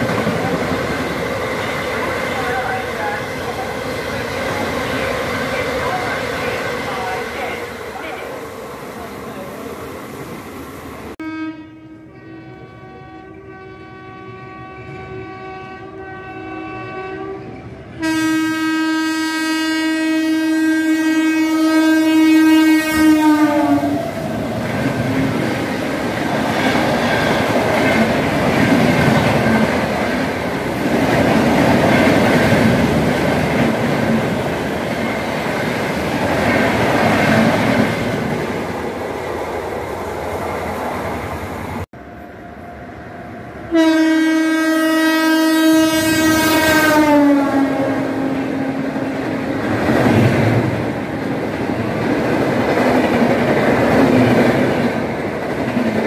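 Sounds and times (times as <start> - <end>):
train rumble and wheel clatter: 0.0 - 11.2, 12.1 - 56.0
train horn blasts: 11.2 - 24.2, 43.7 - 49.2.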